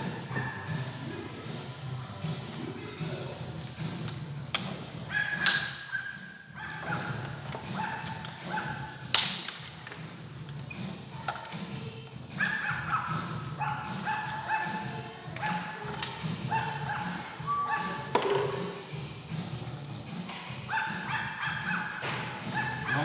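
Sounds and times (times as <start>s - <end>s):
metal tools knocking and clanking: 3.9s - 6.0s, 6.6s - 17.3s, 18.0s - 19.0s.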